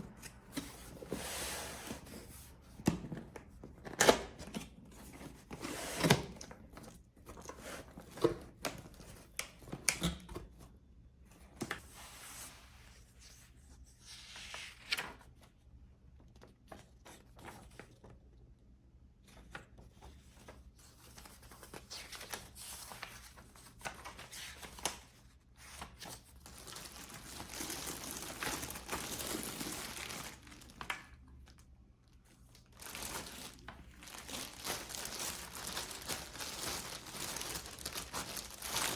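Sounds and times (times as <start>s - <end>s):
wrapping crinkling and tearing: 26.0s - 31.6s, 32.5s - 38.9s.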